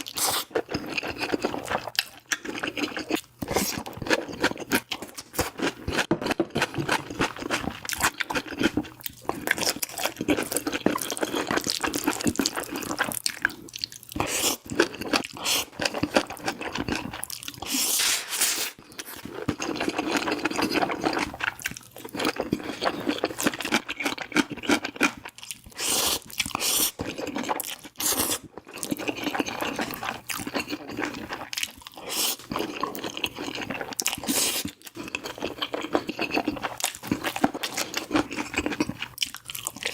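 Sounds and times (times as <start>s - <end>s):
wet chewing: 18.9s - 39.9s.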